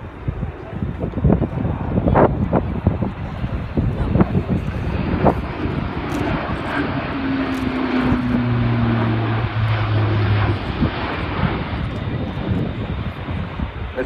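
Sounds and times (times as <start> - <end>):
turboprop aircraft flyby roar: 0.0 - 14.0
lower hum: 3.2 - 13.6.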